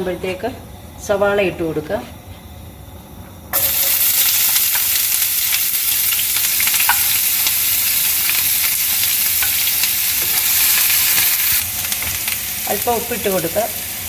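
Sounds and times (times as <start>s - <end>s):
onions sizzling in hot oil: 3.5s - 14.0s.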